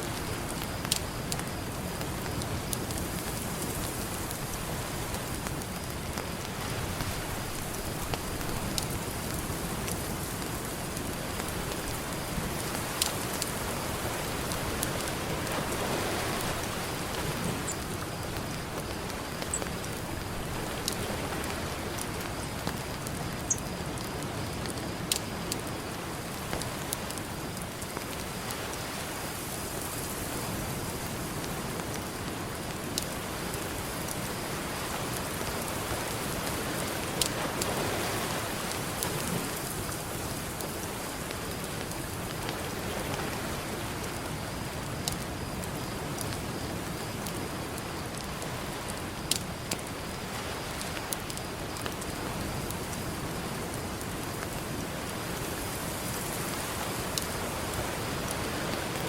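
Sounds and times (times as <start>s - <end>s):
ocean surf: 0.0s - 22.3s, 32.2s - 45.4s
campfire crackling: 0.0s - 59.0s.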